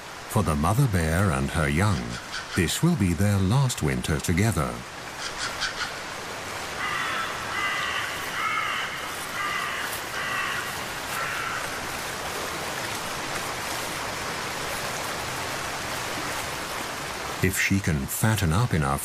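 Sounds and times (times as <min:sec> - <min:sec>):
hiss of running water: 0:00.0 - 0:19.0
bird harsh calls: 0:02.0 - 0:02.7, 0:05.1 - 0:06.1, 0:06.8 - 0:11.8.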